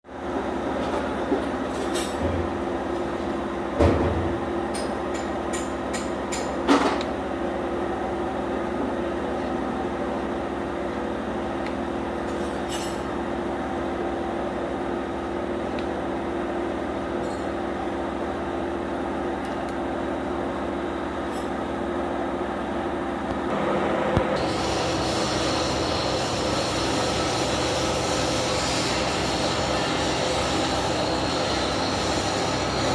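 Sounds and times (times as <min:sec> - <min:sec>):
machine humming: 0:23.2 - 0:32.9.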